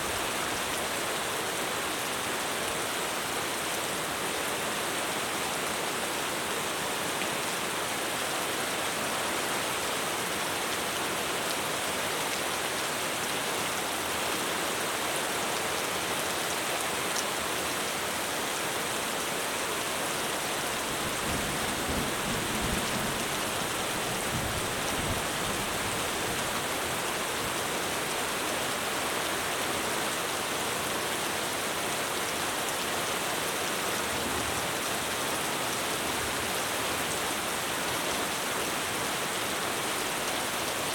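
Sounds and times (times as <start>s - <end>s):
heavy rain on a roof: 0.0s - 40.9s.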